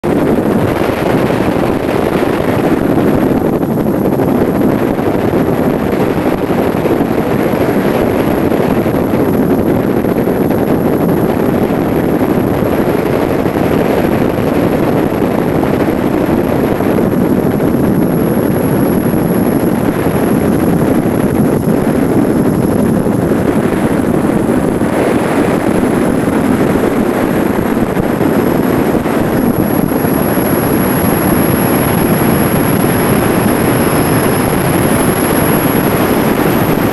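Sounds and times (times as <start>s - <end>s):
aircraft engine and airflow noise: 0.0s - 36.9s
thin high whine: 13.1s - 36.9s.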